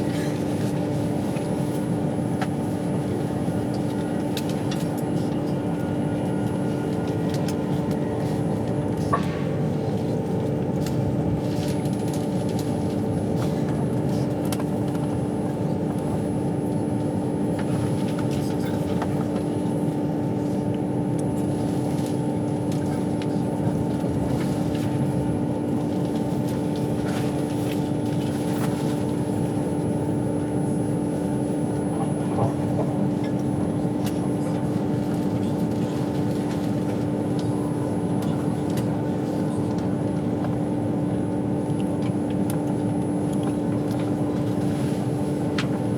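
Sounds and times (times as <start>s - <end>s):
train running rumble: 0.0s - 30.5s.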